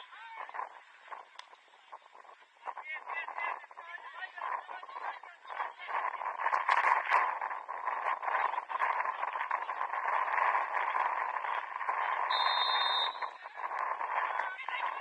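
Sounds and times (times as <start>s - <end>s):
referee's whistle blast: 12.3s - 13.3s.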